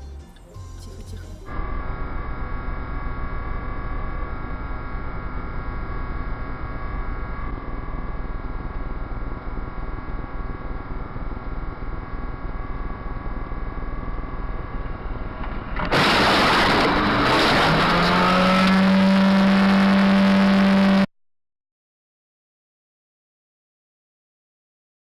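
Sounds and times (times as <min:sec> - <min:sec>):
car driving noise: 0:00.7 - 0:21.1
rising tone: 0:10.8 - 0:21.1.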